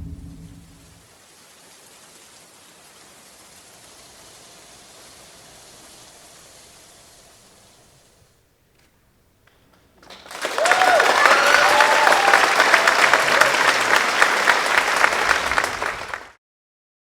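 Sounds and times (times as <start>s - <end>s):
audience applauding: 10.0s - 16.4s
cheering whoops: 10.3s - 16.3s.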